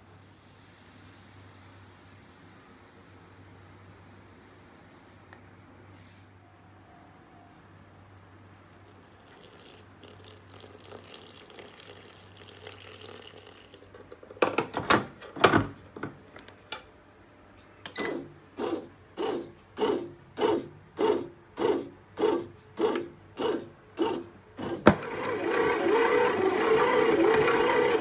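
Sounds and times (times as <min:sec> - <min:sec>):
water trickling into pan: 0:08.7 - 0:14.0
short machine beep: 0:17.9 - 0:18.4
pan clunking into machine: 0:24.6 - 0:25.3.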